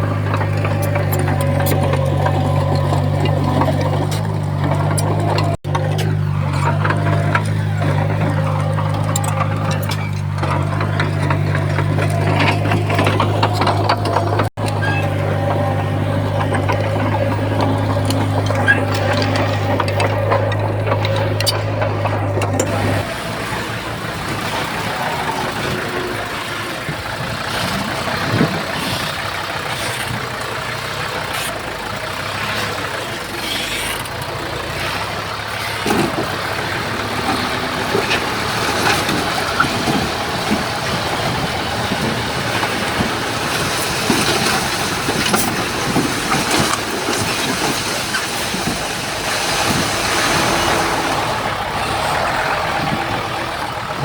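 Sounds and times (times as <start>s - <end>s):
knocks and clanks: 0.0s - 29.0s
diesel engines running: 0.0s - 54.0s.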